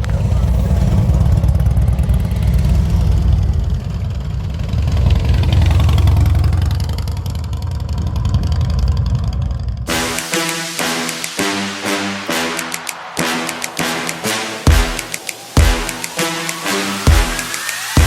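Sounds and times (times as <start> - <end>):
motorcycle engine rumbling: 0.0 - 9.9
music: 9.9 - 18.0.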